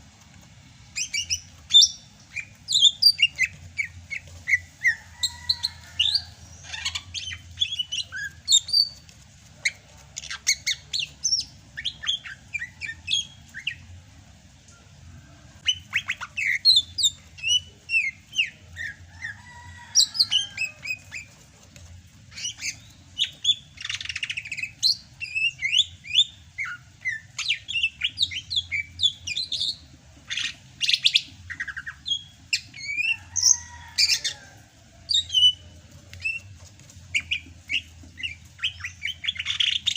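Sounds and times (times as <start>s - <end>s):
bird singing: 1.0s - 9.0s, 15.6s - 21.3s, 37.1s - 39.9s.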